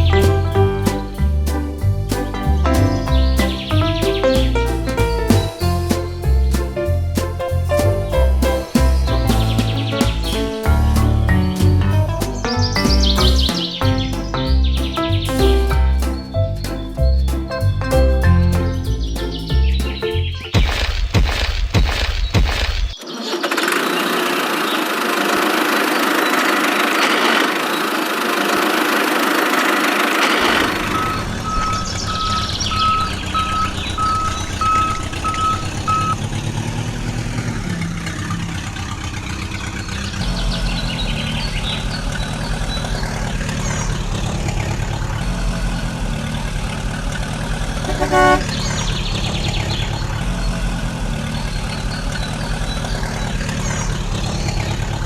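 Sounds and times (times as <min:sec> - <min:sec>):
vehicle engine pulsing: 0:30.3 - 0:55.0
reversing beeps: 0:30.4 - 0:36.2
short horn toot: 0:47.9 - 0:48.7.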